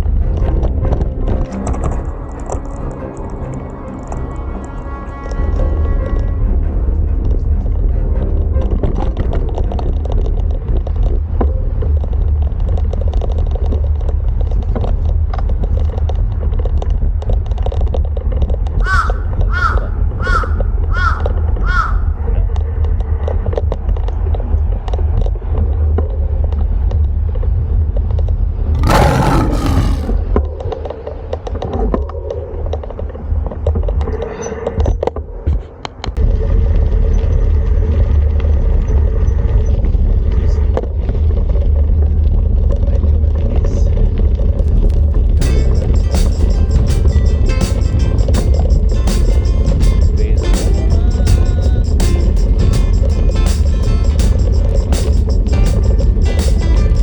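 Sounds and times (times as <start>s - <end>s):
bird calling: 18.8s - 22.1s.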